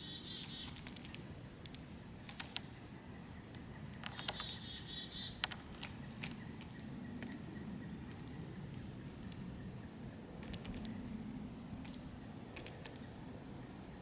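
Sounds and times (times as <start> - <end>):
high thin bird calls: 0.0 - 0.8, 4.0 - 5.4.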